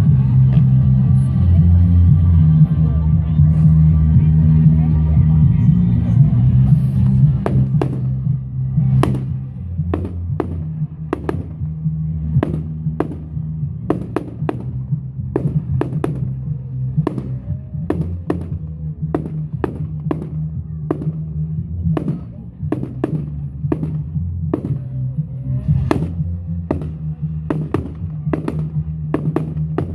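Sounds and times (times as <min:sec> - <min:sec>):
low music bed: 0:00.0 - 0:29.9
fireworks exploding: 0:07.4 - 0:08.2, 0:08.8 - 0:11.6, 0:12.2 - 0:21.2, 0:22.0 - 0:24.9, 0:25.8 - 0:29.9.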